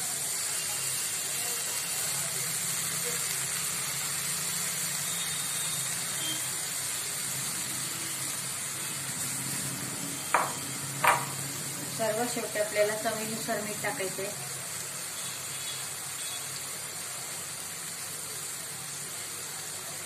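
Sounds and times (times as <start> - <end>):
food sizzling in a pan: 0.0 - 20.0
sharp knock: 10.4 - 11.4.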